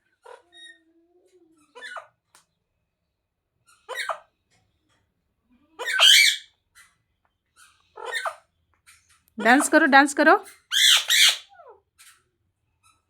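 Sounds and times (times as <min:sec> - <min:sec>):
parrot squawking: 0:03.9 - 0:04.2, 0:05.8 - 0:06.5, 0:08.0 - 0:08.4, 0:10.4 - 0:11.6.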